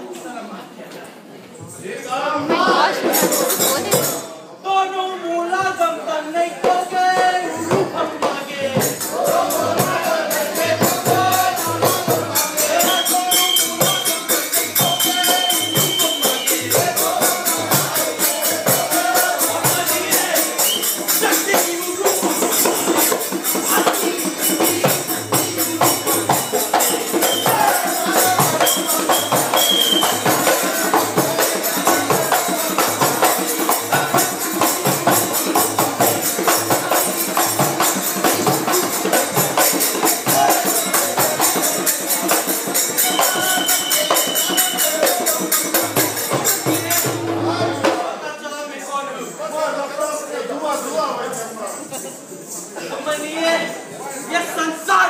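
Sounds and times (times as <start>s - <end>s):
drum beating steadily: 2.4s - 4.3s, 6.6s - 48.2s
jingling percussion: 2.5s - 4.4s, 6.6s - 54.6s.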